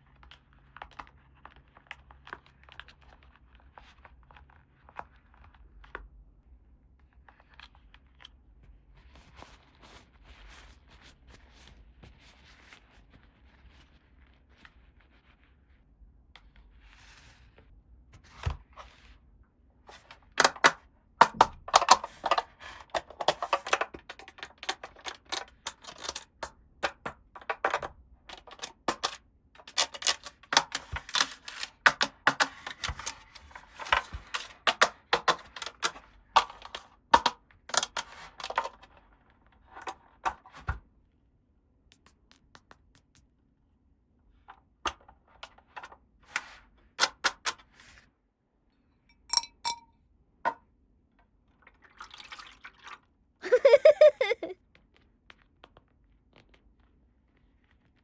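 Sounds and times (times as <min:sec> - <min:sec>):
plastic toy pieces clicking: 0:21.7 - 0:26.5, 0:27.4 - 0:33.1.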